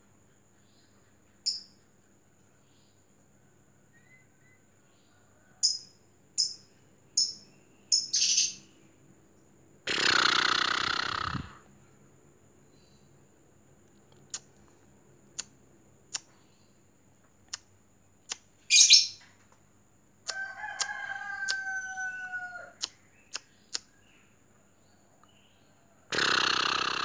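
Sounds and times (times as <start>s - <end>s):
rooster crowing: 20.2s - 22.9s.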